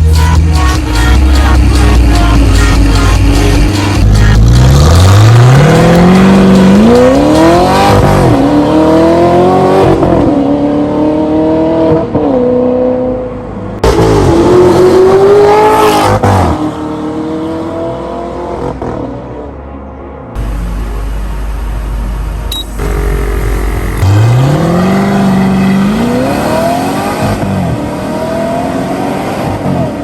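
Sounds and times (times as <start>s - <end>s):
car engine accelerating hard: 1.2s - 18.8s, 20.4s - 30.0s.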